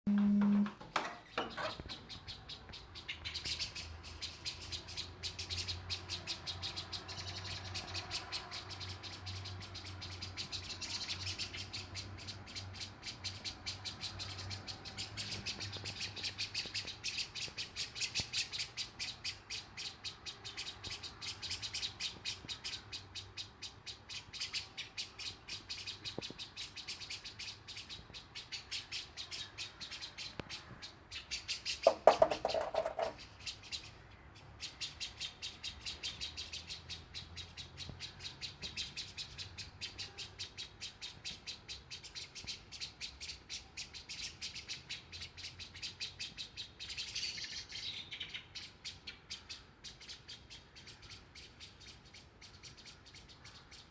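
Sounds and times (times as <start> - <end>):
low steady hum: 0.1 - 0.8
small birds chirping: 0.1 - 53.9.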